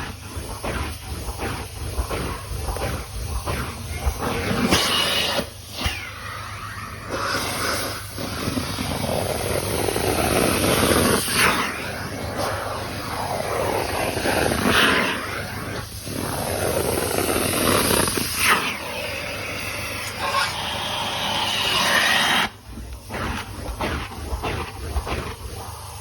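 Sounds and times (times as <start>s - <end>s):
carpet extraction vacuum hissing: 0.0s - 26.0s.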